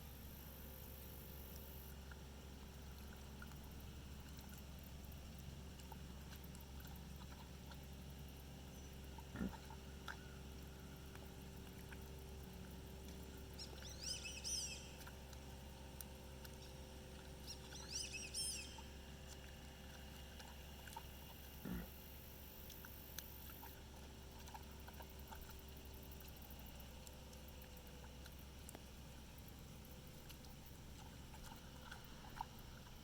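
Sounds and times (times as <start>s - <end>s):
low hum: 0.0s - 33.0s
bird chirping calls: 13.6s - 15.0s, 17.4s - 18.8s.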